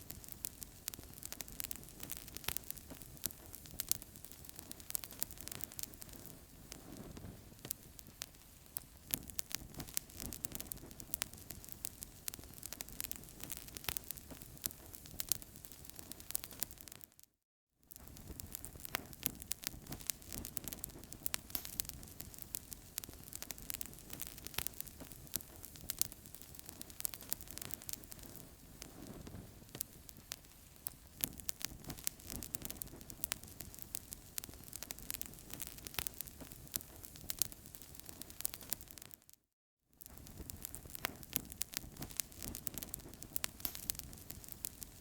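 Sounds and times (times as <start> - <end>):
wood fire crackling: 0.0 - 17.2, 17.9 - 39.3, 40.0 - 45.0
hiss of flames: 40.1 - 45.0.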